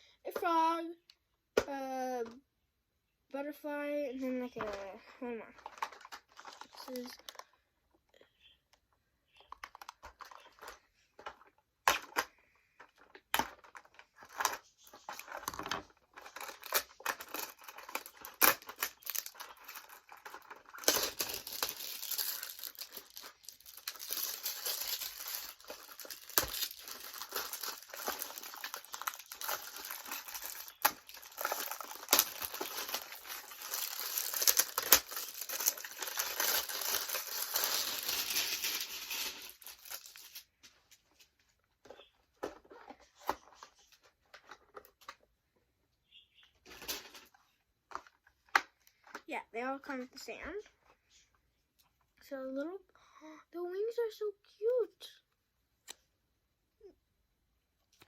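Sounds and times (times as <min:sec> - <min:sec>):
plastic and card crinkling: 0:04.2 - 0:07.6, 0:09.3 - 0:45.3
packaging clicks and rustles: 0:05.5 - 0:07.6, 0:09.4 - 0:40.5.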